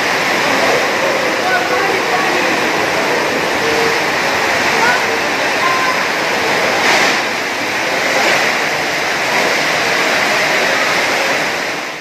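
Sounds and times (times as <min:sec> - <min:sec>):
heavy wind-driven rain: 0:00.0 - 0:12.0.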